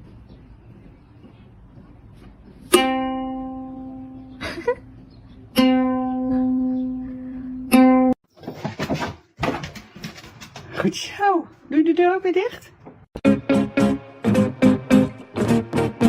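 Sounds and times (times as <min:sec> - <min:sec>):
plucked string notes: 0:02.7 - 0:04.4, 0:05.5 - 0:08.2, 0:13.2 - 0:16.0.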